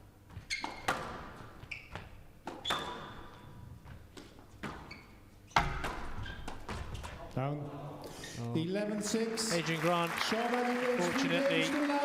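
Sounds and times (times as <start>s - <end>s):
shoes squeaking on court: 0.2s - 7.3s.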